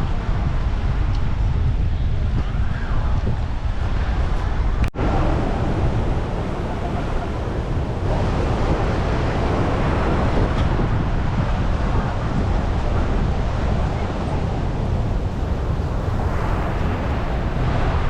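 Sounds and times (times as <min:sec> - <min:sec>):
wind buffeting microphone: 0:00.0 - 0:18.0
surf washing on a beach: 0:05.0 - 0:18.0.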